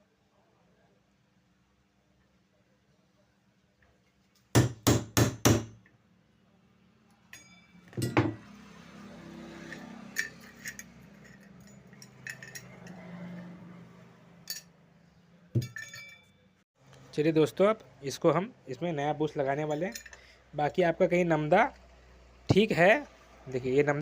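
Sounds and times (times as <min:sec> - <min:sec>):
hammer striking metal punch: 0:04.6 - 0:05.8, 0:07.4 - 0:08.5
handling metal parts: 0:07.2 - 0:08.4, 0:09.6 - 0:13.5, 0:14.4 - 0:14.8, 0:15.6 - 0:16.4, 0:19.5 - 0:20.3
metal clinks: 0:07.3 - 0:08.4, 0:09.6 - 0:13.4, 0:14.4 - 0:14.7, 0:15.6 - 0:16.4, 0:19.7 - 0:20.2.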